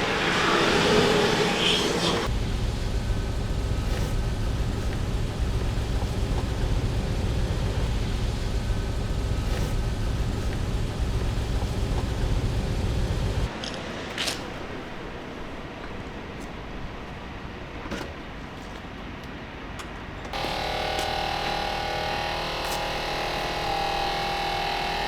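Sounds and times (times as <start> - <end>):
vehicle engine rumbling: 0.0 - 13.5
loud rushing noise: 0.0 - 15.4.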